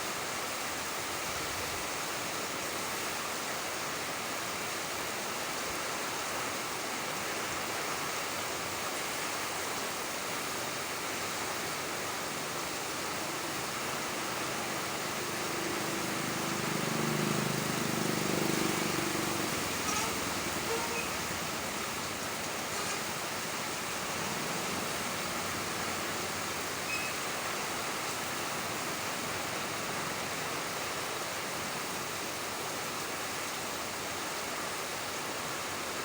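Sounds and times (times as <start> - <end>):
steady rain hiss: 0.0 - 36.0
vehicle passing rumble: 13.8 - 26.4.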